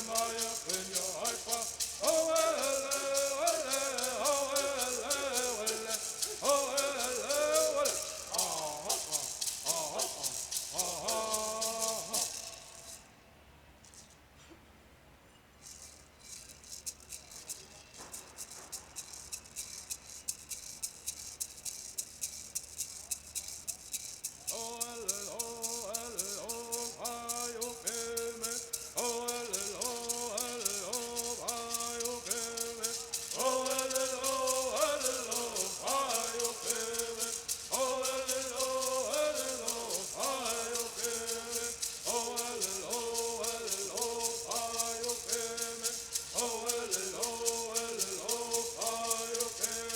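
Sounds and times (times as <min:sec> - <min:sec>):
people singing in unison: 0:00.0 - 0:12.8, 0:24.5 - 0:49.9
gourd rattles shaken: 0:00.0 - 0:13.1, 0:15.6 - 0:49.9.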